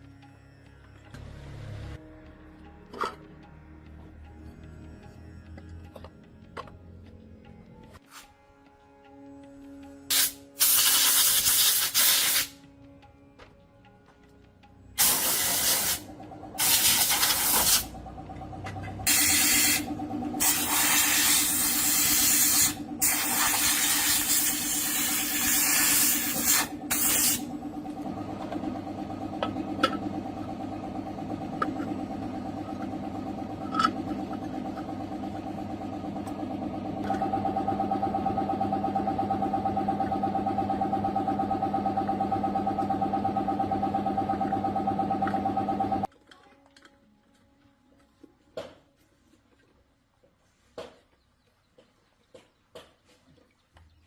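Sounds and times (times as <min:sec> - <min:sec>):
spray nozzle hissing: 0:10.1 - 0:12.5, 0:15.0 - 0:16.0, 0:20.4 - 0:27.4
steady hum: 0:15.0 - 0:46.1.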